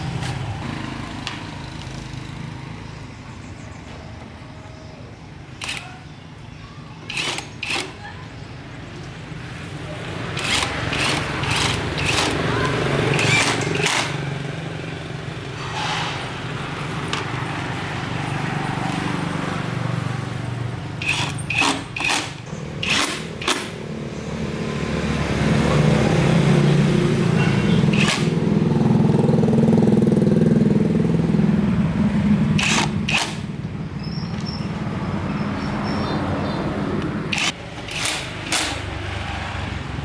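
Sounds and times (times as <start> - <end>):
motor humming: 10.3 - 14.3.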